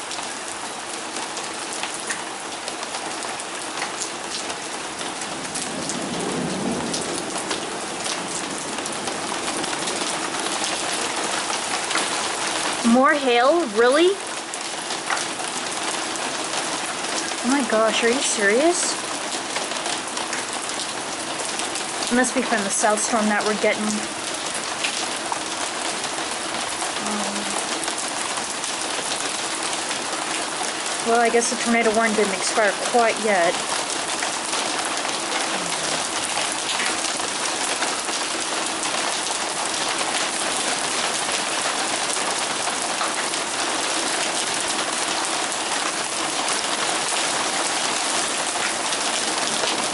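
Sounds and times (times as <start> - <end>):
heavy rain pouring: 0.0 - 49.9
low rumble of thunder: 5.2 - 10.5.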